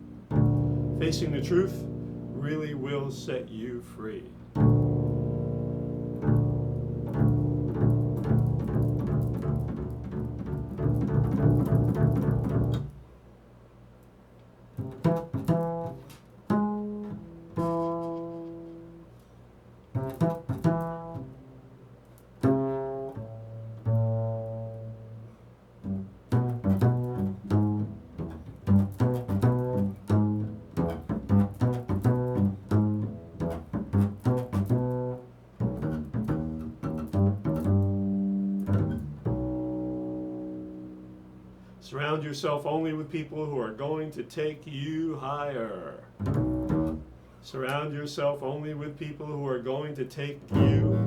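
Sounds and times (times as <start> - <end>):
plucked low string instrument: 0.0 - 13.0, 14.8 - 19.0, 19.9 - 21.7, 22.4 - 41.7, 46.2 - 47.2, 50.5 - 51.0.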